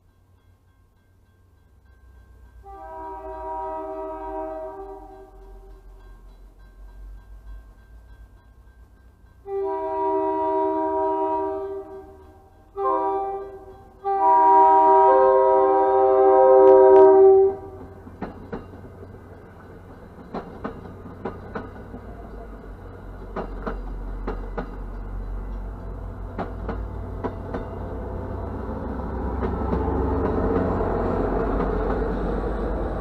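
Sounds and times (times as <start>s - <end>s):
low train rumble: 0.0s - 33.0s
train rushing noise: 2.2s - 33.0s
train wheels clacking over joints: 17.6s - 33.0s.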